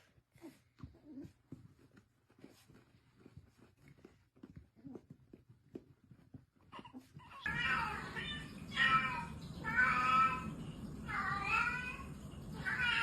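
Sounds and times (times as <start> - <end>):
cat meowing: 7.2 - 13.0.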